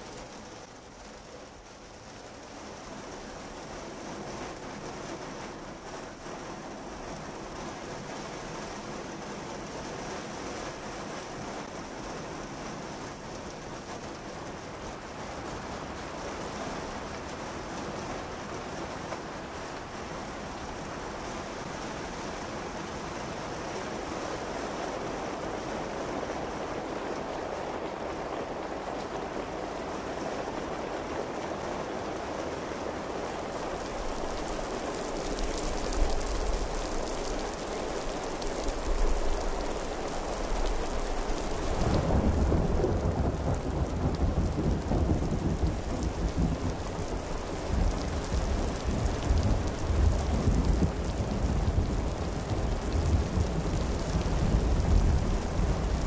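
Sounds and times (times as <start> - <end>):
steady rain: 0.0 - 56.0
heavy plopping raindrops: 33.0 - 56.0.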